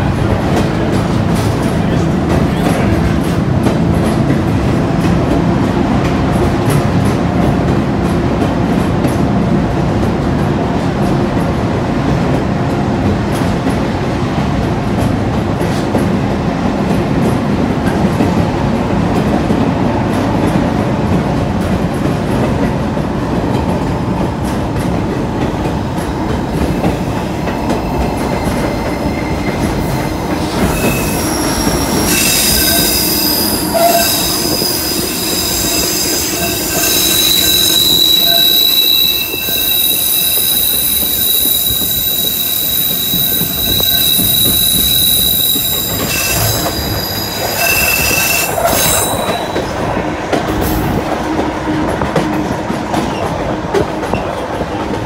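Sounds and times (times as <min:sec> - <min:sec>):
train wheels rumbling on rails: 0:00.0 - 0:55.0
wheels squealing: 0:28.4 - 0:49.7.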